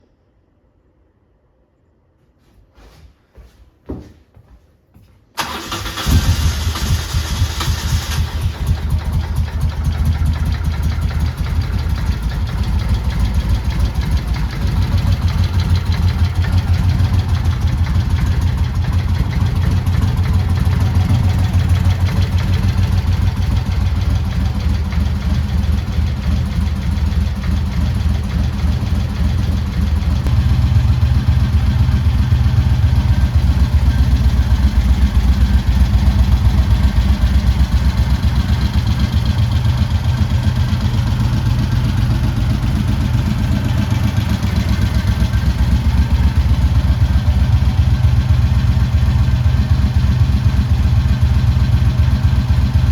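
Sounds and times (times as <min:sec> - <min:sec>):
motorcycle engine idling: 0:06.7 - 0:52.9.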